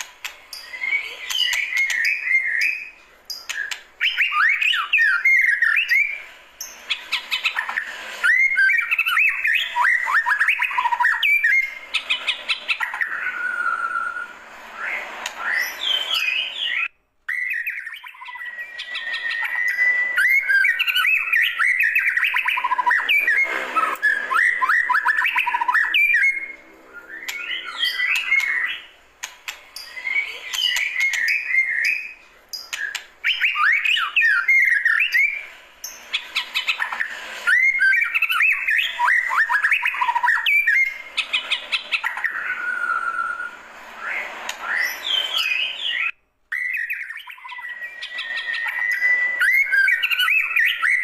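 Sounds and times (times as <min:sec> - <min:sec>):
bird singing whistled phrases: 0:00.6 - 0:28.9, 0:29.8 - 0:35.5, 0:36.1 - 0:51.0.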